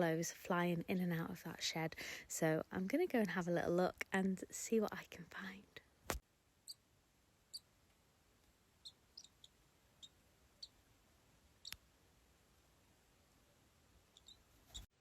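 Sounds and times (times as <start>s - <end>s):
swallow chicks cheeping: 8.8s - 9.5s.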